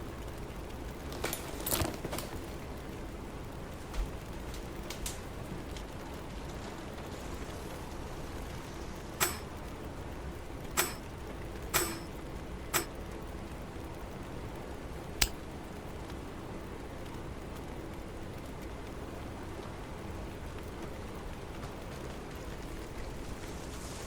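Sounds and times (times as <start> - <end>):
low background noise: 0.0 - 24.0
sharp knocks: 9.2 - 9.5, 10.8 - 11.0, 11.8 - 12.1.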